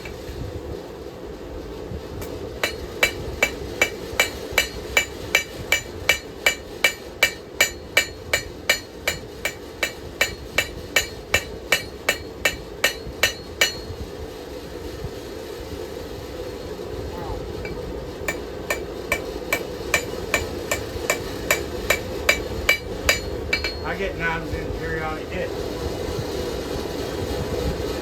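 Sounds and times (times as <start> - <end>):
hammer striking steel on anvil: 2.2 - 14.0, 17.6 - 24.1.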